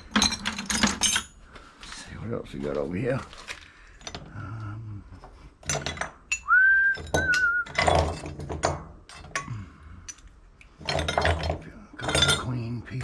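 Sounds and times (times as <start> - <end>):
scrap metal clinks and rattles: 0.0 - 1.4, 3.4 - 4.3, 5.6 - 12.8
wavering whistle: 6.4 - 7.7.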